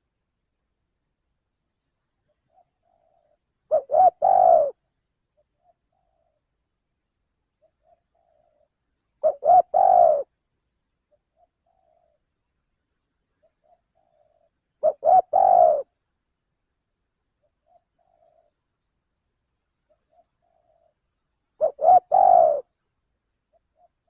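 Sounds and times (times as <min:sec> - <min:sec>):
dove cooing: 0:02.5 - 0:06.4, 0:07.6 - 0:10.3, 0:11.1 - 0:12.3, 0:13.4 - 0:16.0, 0:17.4 - 0:18.6, 0:19.9 - 0:22.8, 0:23.5 - 0:24.0.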